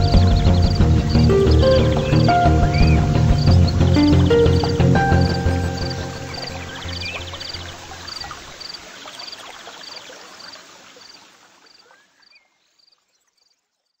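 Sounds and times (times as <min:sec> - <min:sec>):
background music: 0:00.0 - 0:08.5
insects chirping: 0:00.0 - 0:14.0.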